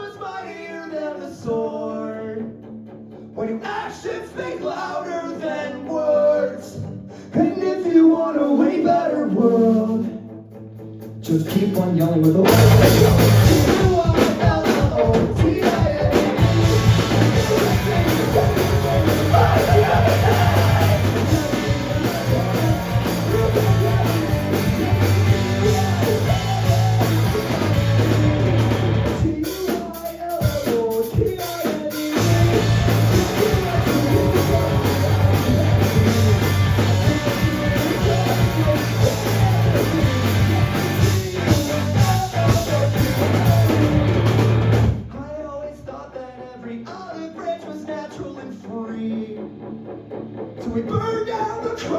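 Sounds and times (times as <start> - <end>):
guitars: 0.0 - 46.1
bass guitar: 9.6 - 45.2
person singing: 11.2 - 44.4
drum kit: 11.2 - 45.5.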